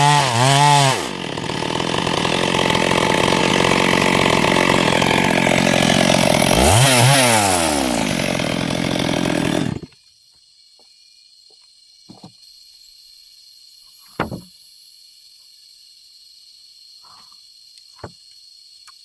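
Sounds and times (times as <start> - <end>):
chainsaw running at high revs: 0.0 - 9.9.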